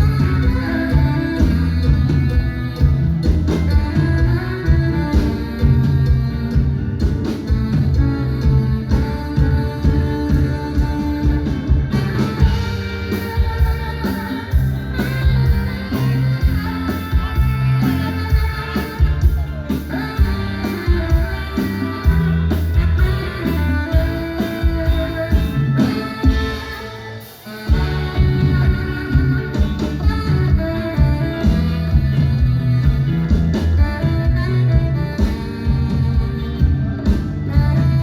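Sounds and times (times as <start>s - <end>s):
drum kit: 0.0s - 38.0s
electric guitar: 0.0s - 38.0s
live band playing: 0.0s - 38.0s.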